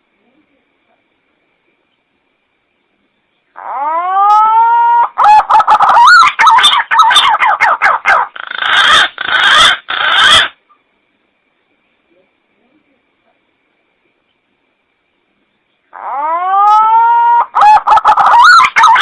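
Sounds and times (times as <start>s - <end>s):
pigeon call whistling and warbling: 16.0s - 19.0s.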